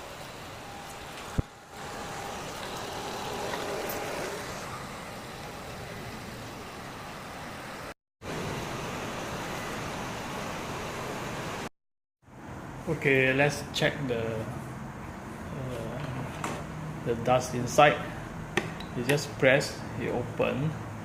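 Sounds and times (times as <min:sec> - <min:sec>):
robot vacuum cleaner running: 0:01.7 - 0:07.4.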